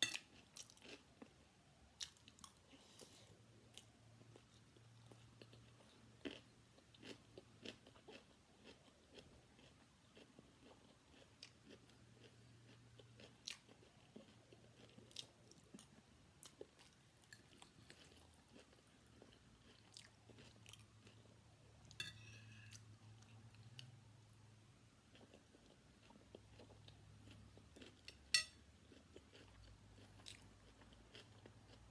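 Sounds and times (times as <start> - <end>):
chewing food: 0.0 - 24.3, 25.0 - 31.9
cutlery clicking on a plate: 22.0 - 22.7, 28.3 - 28.6
cutlery scraping: 22.0 - 22.8, 28.3 - 28.6.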